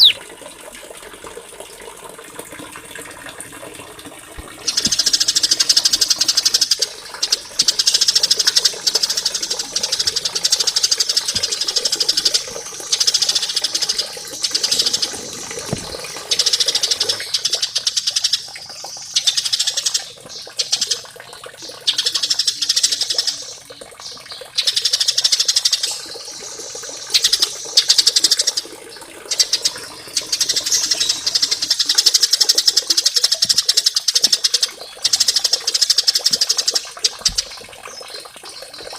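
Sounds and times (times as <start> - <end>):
songbird singing high trills: 0.0 - 0.2.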